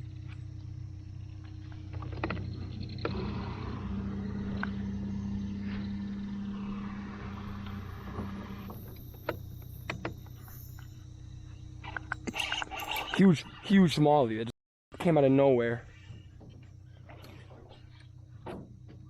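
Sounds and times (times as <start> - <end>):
boat motor running: 0.0 - 13.6
higher steady hum: 0.0 - 14.3.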